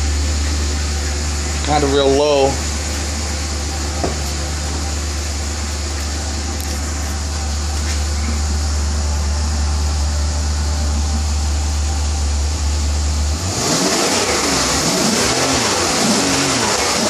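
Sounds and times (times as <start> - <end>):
car engine idling: 0.0 - 17.0
engine revving: 13.2 - 17.0.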